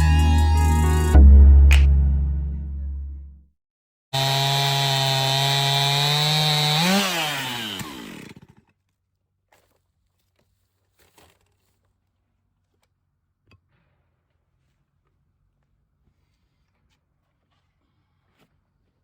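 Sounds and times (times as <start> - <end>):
chainsaw ripping a board: 4.2 - 8.9, 9.6 - 11.8.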